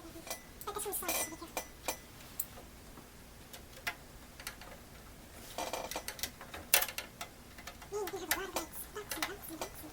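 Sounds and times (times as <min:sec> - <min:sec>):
small metal parts clicking: 0:05.6 - 0:09.9.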